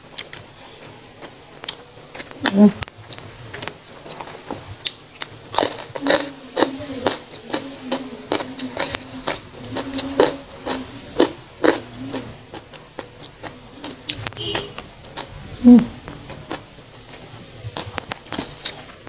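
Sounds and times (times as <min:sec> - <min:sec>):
crisp chewing crunches: 0:00.1 - 0:15.4, 0:16.0 - 0:19.0
wet mouth sounds: 0:01.6 - 0:18.9.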